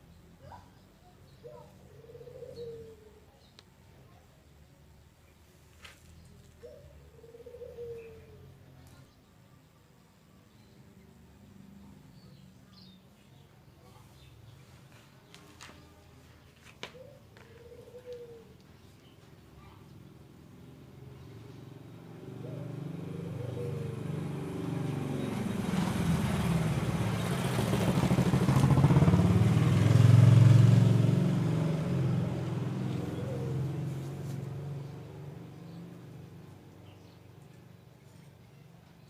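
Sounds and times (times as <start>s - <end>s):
vehicle engine passing by: 19.9s - 39.0s.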